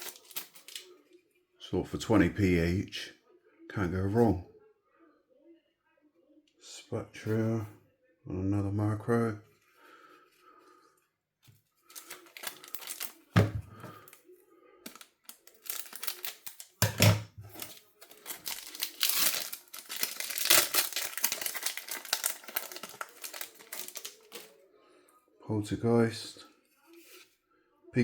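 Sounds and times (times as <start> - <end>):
cards rustling: 0.0 - 0.9, 11.8 - 14.2, 14.9 - 16.9, 17.5 - 24.6
foil wrapper crinkling and tearing: 0.0 - 0.9, 11.8 - 14.2, 14.9 - 16.9, 17.5 - 24.6.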